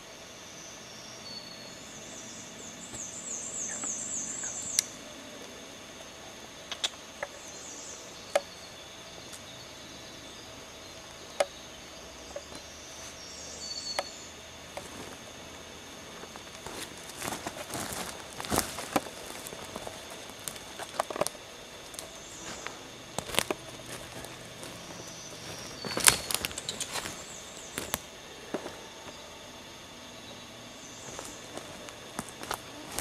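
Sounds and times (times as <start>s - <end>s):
sharp snaps or clicks: 6.7s - 7.4s
small bird singing high trills: 12.3s - 14.4s.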